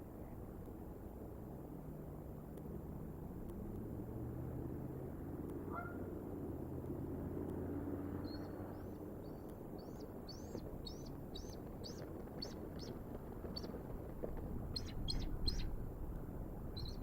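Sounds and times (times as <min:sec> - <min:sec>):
low outdoor rumble: 0:00.0 - 0:17.0
bird chirping: 0:08.2 - 0:13.8, 0:14.7 - 0:15.8, 0:16.7 - 0:17.0.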